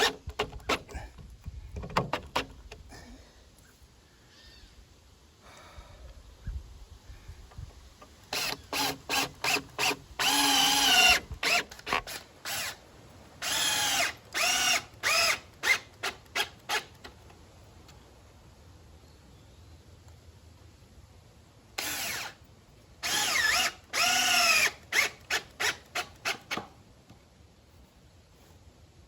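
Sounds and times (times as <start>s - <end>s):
power drill driving screws into wood: 0.0s - 0.9s, 8.3s - 12.8s, 13.4s - 17.0s, 21.8s - 22.4s, 23.0s - 26.7s.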